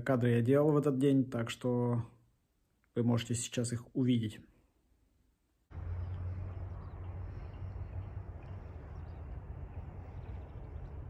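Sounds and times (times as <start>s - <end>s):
outdoor background rumble: 5.7s - 11.0s.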